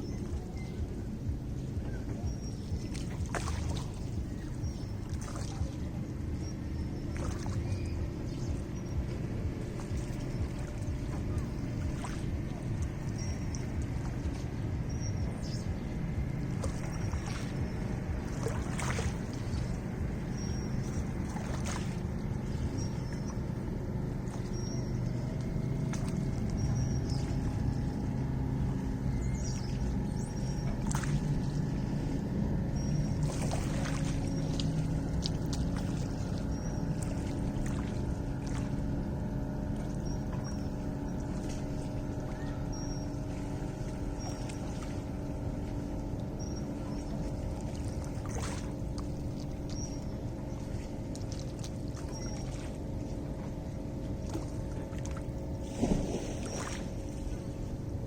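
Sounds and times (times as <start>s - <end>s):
faint high chirp: 0.0s - 28.1s, 29.0s - 31.9s, 39.7s - 48.7s, 51.9s - 52.8s
lake water lapping: 0.0s - 58.0s
low steady rumble: 0.0s - 58.0s
small splashes and knocks: 2.8s - 4.2s, 5.0s - 5.8s, 7.1s - 7.8s, 16.5s - 17.6s, 18.2s - 19.8s, 20.8s - 22.1s, 25.4s - 27.6s, 30.6s - 31.4s, 33.2s - 38.8s, 46.9s - 52.8s, 54.1s - 57.4s.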